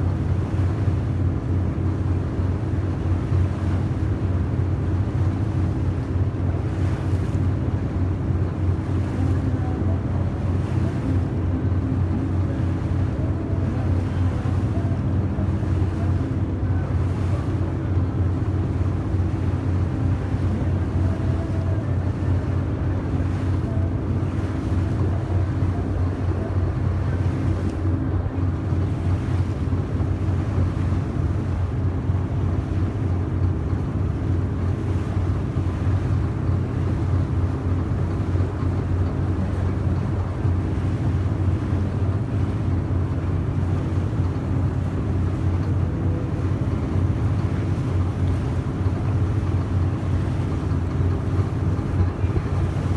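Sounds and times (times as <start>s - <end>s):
boat engine droning: 0.0s - 52.9s
water rushing: 0.0s - 52.9s
wind: 0.0s - 52.9s.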